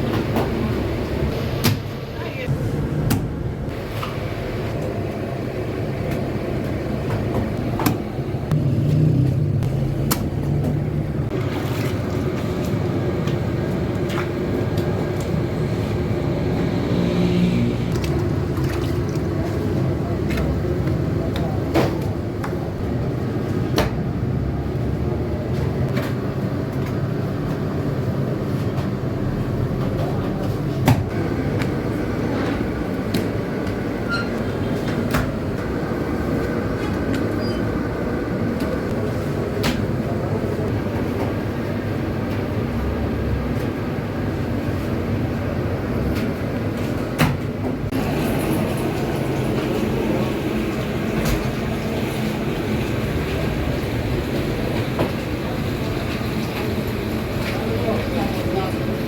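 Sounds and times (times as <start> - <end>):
machinery humming: 47.5 - 59.0.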